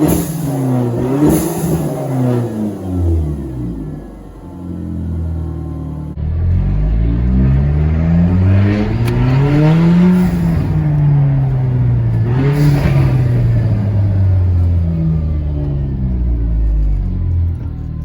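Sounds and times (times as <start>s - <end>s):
car engine pulling hard: 0.0s - 18.0s
blow-off valve whoosh: 8.4s - 15.2s.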